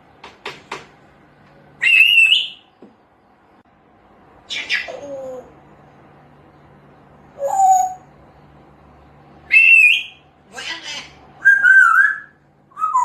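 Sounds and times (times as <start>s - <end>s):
parrot whistling: 1.8s - 2.6s, 7.4s - 8.0s, 9.5s - 10.2s, 11.4s - 13.0s
parrot rasping call: 4.5s - 5.5s.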